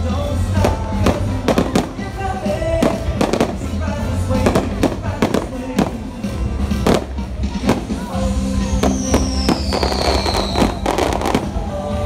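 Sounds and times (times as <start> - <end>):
firework bangs and crackles: 0.0 - 12.0
show music: 0.0 - 12.0
firework whistle falling in pitch: 8.6 - 11.2.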